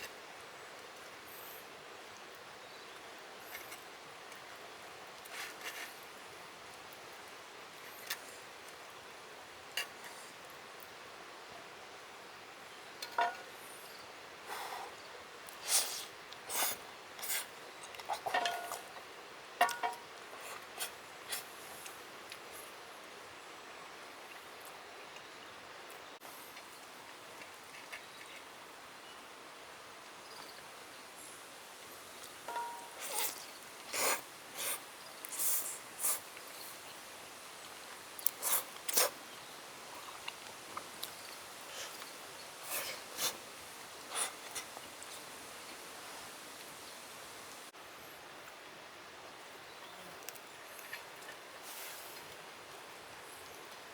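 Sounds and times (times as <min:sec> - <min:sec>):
background hiss: 0:00.0 - 0:53.9
rustling scrapes: 0:05.3 - 0:06.0
metallic clink: 0:32.5 - 0:33.0.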